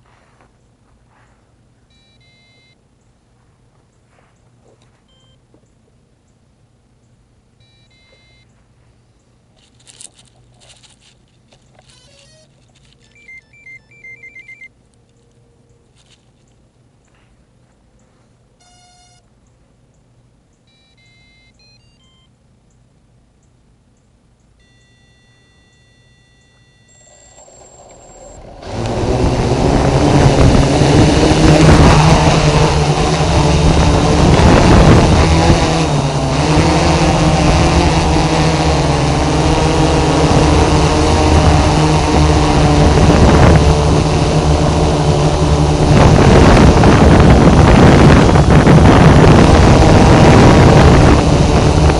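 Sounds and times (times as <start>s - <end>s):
electronic beeps and tones: 1.9s - 2.8s, 7.6s - 8.5s, 11.8s - 14.7s, 24.6s - 28.6s
drone motors buzzing: 9.6s - 14.7s, 24.6s - 51.9s.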